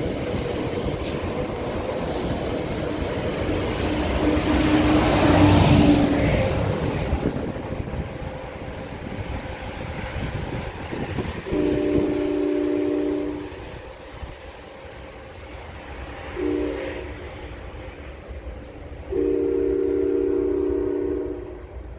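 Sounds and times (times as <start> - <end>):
diesel locomotive engine: 0.0 - 21.9
train rumble and rail clatter: 0.0 - 21.9
multi-note train horn: 11.4 - 13.9, 16.4 - 17.4, 19.1 - 21.9.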